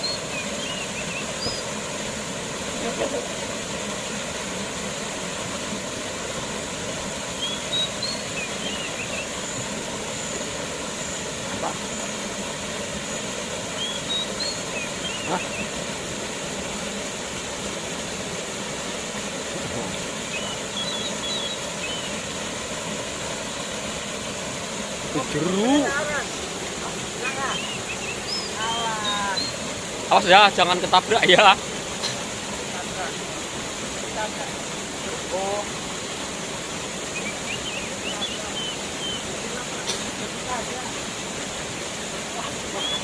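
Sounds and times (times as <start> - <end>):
bird chirping: 0.0 - 1.8, 7.4 - 12.2, 13.1 - 15.8, 19.8 - 22.3, 27.1 - 29.7, 37.1 - 39.3, 42.7 - 43.0
waterfall rushing: 0.0 - 43.0.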